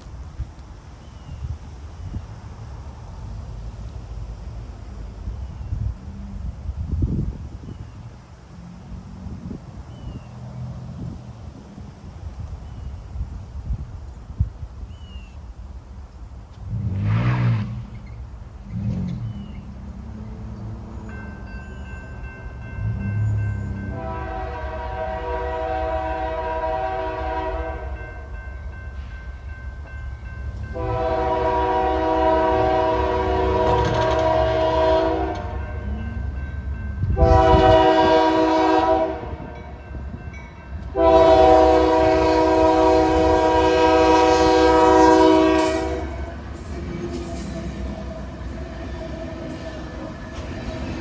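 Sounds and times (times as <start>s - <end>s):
low rumble of train: 0.0s - 51.0s
train air horn blasts: 23.8s - 28.3s, 30.7s - 36.2s, 37.0s - 40.0s, 40.9s - 49.6s.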